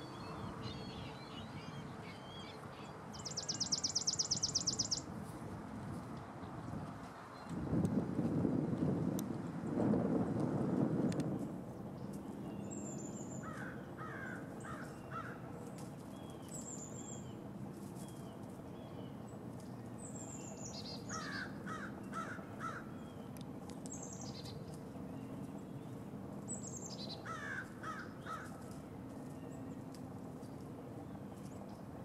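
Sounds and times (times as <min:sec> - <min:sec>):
birds calling: 0:12.0 - 0:30.5.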